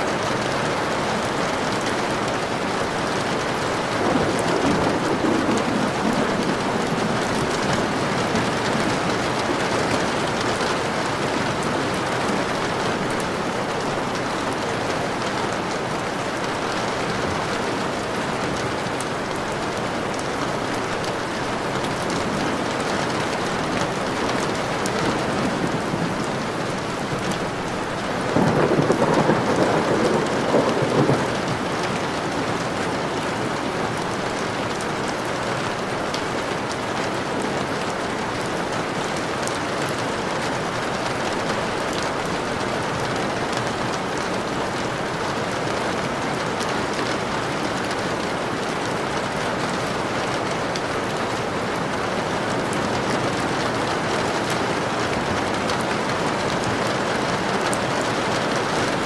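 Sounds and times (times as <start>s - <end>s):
steady rain falling: 0.0s - 59.0s
thunder rumbling: 1.2s - 20.3s, 21.0s - 34.8s.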